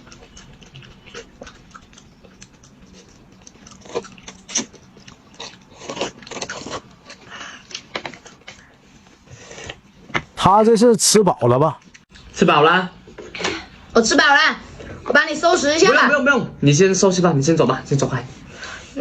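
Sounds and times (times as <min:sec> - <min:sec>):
person chewing crunchy food: 0:00.0 - 0:08.6.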